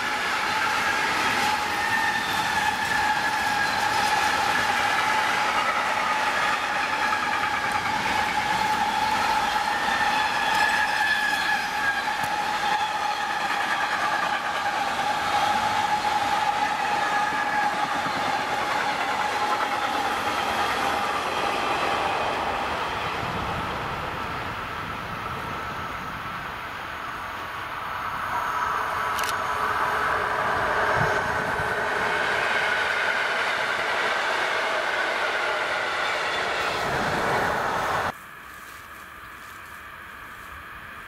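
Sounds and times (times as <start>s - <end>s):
freight train wagons rolling: 0.0s - 22.1s.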